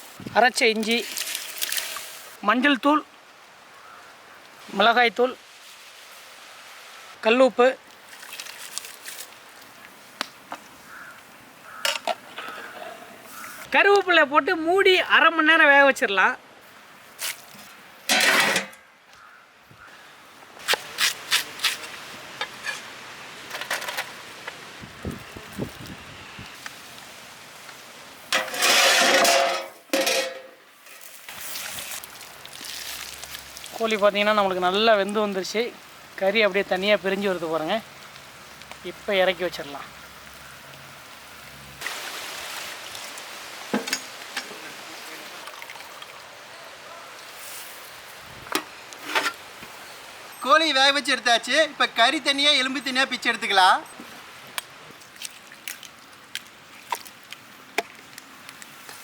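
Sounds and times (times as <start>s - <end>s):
loud scrape: 28.4s - 30.3s.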